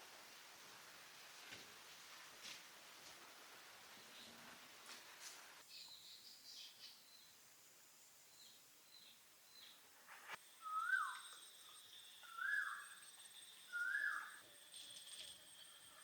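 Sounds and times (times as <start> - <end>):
faint high-pitched whine: 0.0 - 16.0
bird whistling: 10.6 - 13.1, 13.7 - 14.4.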